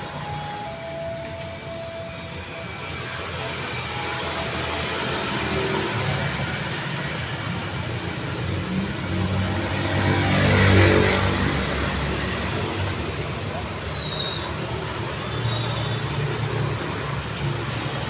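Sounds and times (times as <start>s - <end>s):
road traffic noise: 0.0s - 18.0s
motor vehicle passing close: 4.6s - 14.9s.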